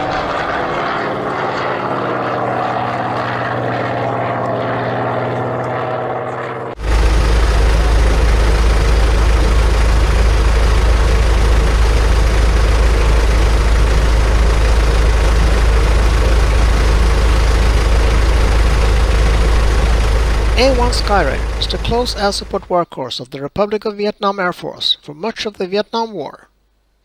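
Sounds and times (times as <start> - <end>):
engine rumbling: 0.0 - 22.8.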